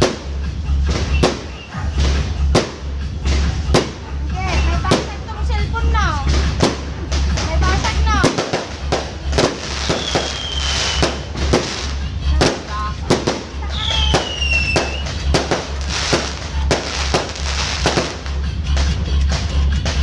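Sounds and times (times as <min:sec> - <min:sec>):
fireworks bangs and pops: 0:00.0 - 0:20.0
descending firework whistles: 0:01.0 - 0:02.0, 0:09.4 - 0:11.7, 0:13.7 - 0:18.0.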